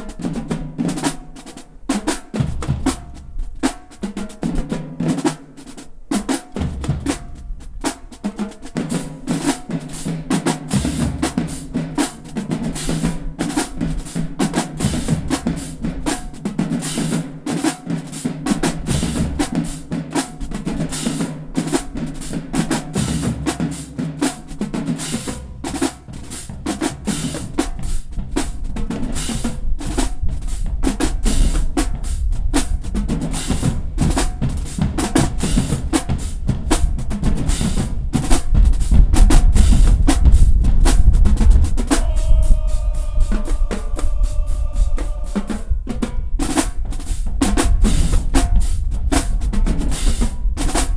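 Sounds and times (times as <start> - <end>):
snare drum strokes and rolls: 0.0 - 50.9
pounding bass drums: 2.4 - 3.7, 6.6 - 8.2, 10.6 - 17.1, 18.7 - 20.7, 22.0 - 50.9.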